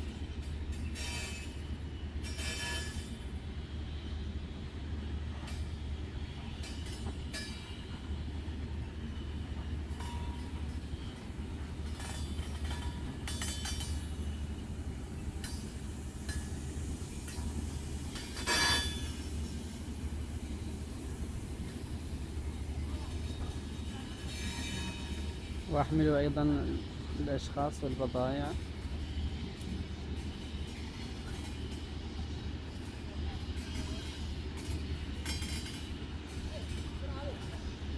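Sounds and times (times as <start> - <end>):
freight train rumbling: 0.0 - 37.9.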